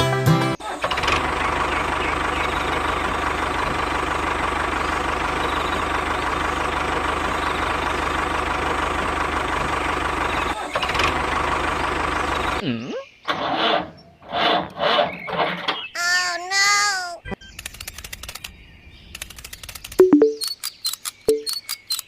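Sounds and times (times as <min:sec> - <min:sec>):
engine idling: 0:00.8 - 0:12.6.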